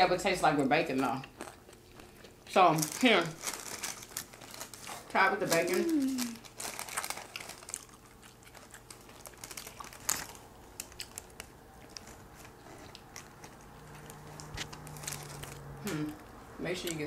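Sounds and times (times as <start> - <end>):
close chewing with wet clicks: 1.0 - 2.6, 6.9 - 17.0
paper wrapper rustling: 2.7 - 15.8.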